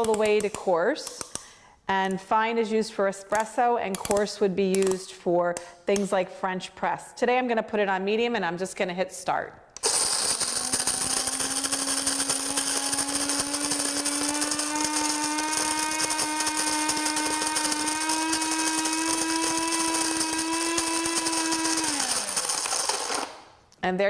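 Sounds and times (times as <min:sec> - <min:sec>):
coffee grinder motor hum: 0:09.8 - 0:23.5
coffee beans grinding: 0:09.8 - 0:23.6.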